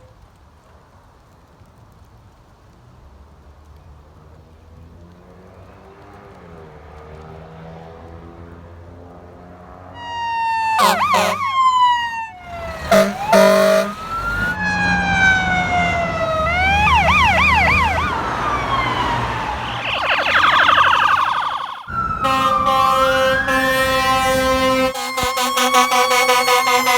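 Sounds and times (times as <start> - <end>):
fire engine siren: 9.9 - 26.9
short horn blasts: 10.8 - 11.5, 12.8 - 14.1, 22.2 - 26.9.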